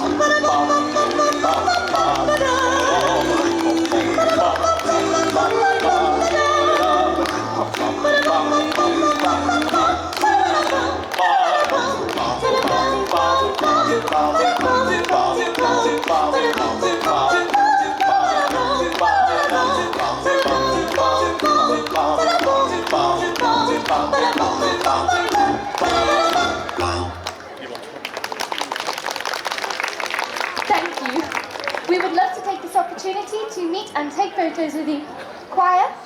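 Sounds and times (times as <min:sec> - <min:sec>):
choir singing in harmony: 0:00.0 - 0:27.2.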